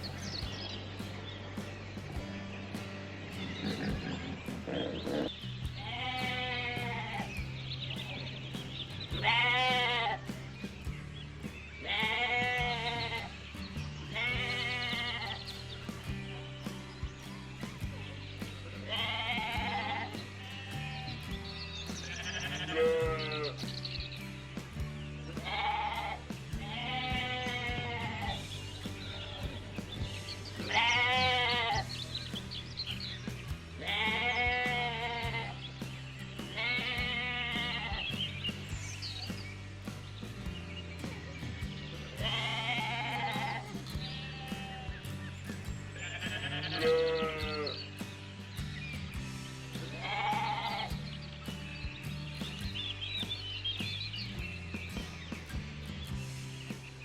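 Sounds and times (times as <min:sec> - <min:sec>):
background music with bass: 0:00.0 - 0:57.0
animal bleating: 0:03.4 - 0:08.2, 0:09.1 - 0:10.4, 0:11.8 - 0:13.4, 0:14.0 - 0:15.6, 0:18.8 - 0:23.7, 0:25.3 - 0:32.0, 0:33.8 - 0:35.7, 0:36.4 - 0:38.5, 0:42.2 - 0:45.3, 0:46.0 - 0:48.0, 0:49.8 - 0:51.1.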